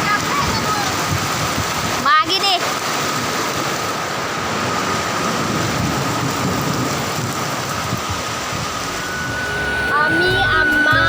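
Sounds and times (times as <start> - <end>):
faint high steady tone: 8.4 - 11.0.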